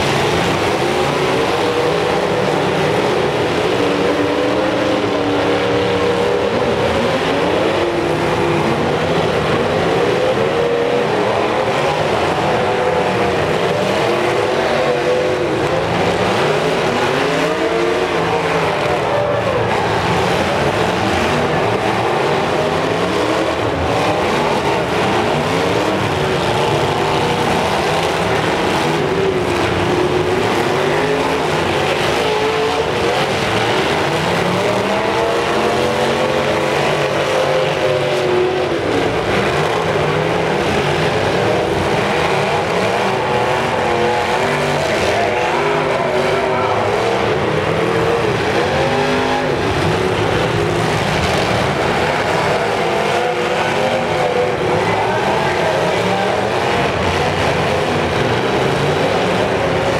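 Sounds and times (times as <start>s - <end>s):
car engines revving hard: 0.0s - 59.9s.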